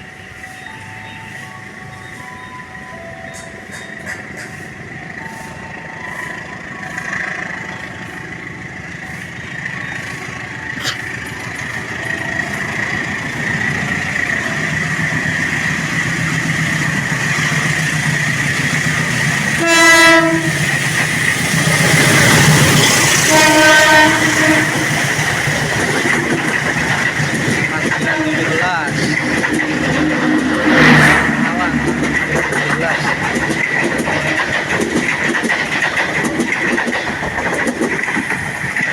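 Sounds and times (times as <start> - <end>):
passenger train passing: 0.0 - 38.9
train horn blasts: 19.6 - 20.8, 23.2 - 25.2, 28.0 - 28.8.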